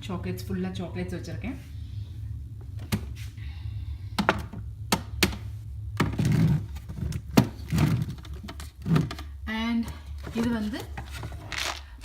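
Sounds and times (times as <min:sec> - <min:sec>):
plastic containers clicking and knocking: 0:06.0 - 0:09.4.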